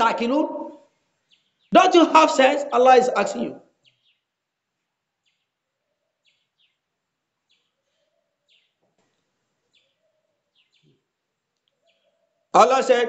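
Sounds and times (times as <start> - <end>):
faint high bird chirps: 7.5 - 8.8, 9.7 - 11.1, 11.7 - 12.5.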